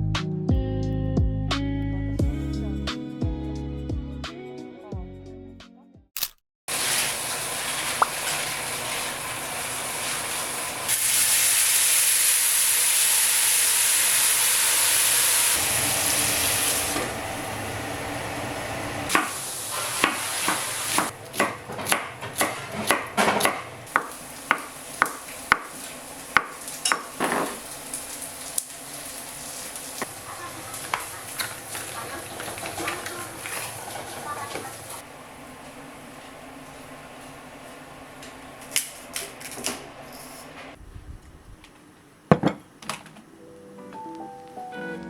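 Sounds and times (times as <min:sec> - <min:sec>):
steady sizzling hiss: 0:23.8 - 0:32.2
utensils clinking against pan: 0:26.4 - 0:27.7.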